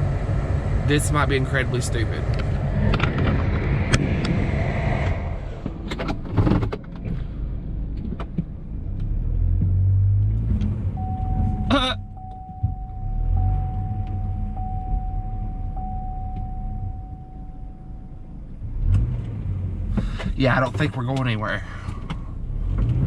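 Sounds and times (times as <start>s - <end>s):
car engine revving: 8.7s - 23.0s
steady high tone: 11.0s - 18.5s.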